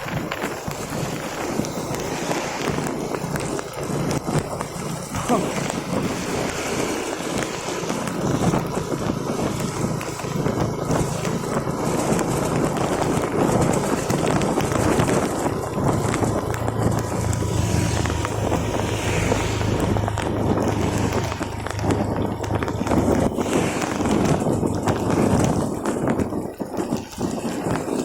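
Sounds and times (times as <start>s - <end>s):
vehicle running noise: 0.0s - 28.0s
wind on microphone: 0.0s - 28.0s
low hum: 15.8s - 24.6s.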